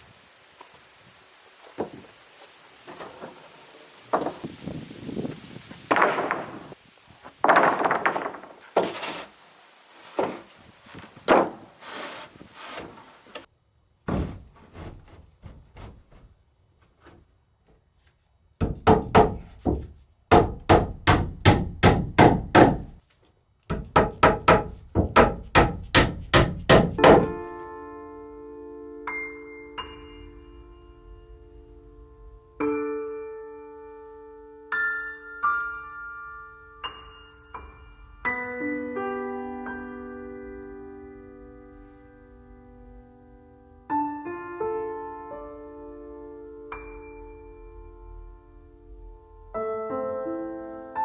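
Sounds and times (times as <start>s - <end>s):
scraping and handling noises: 7.4s - 9.4s, 14.1s - 17.3s
hammer striking nails: 18.6s - 23.0s, 23.7s - 27.5s
music: 27.3s - 51.0s.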